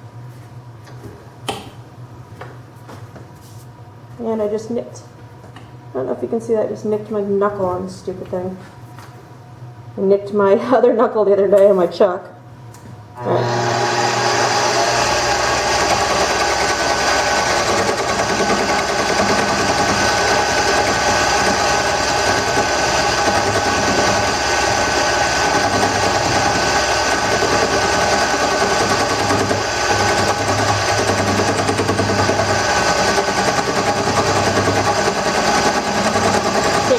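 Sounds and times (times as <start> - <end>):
turning tool cutting wood: 13.2 - 36.9
wood lathe motor hum: 13.2 - 36.9.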